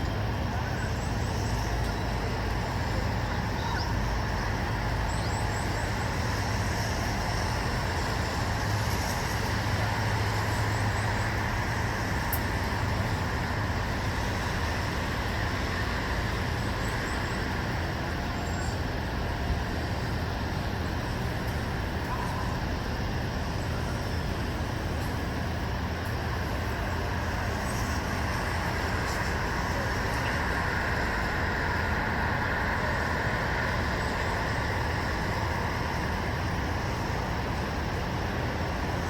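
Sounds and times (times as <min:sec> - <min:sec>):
distant road traffic hum: 0:00.0 - 0:39.0.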